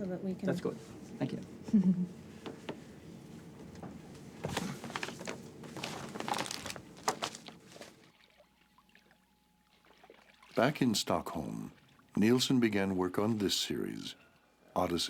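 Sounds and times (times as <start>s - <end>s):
objects being handled: 2.4s - 8.1s.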